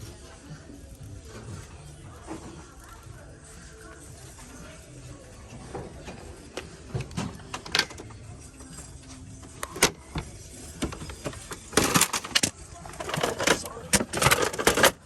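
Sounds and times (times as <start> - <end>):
objects clattering: 5.5 - 15.0
hard objects knocking and clicking: 9.5 - 15.0.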